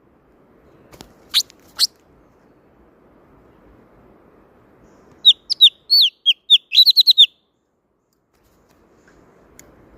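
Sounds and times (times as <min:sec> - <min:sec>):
songbird whistling: 0:05.2 - 0:07.5.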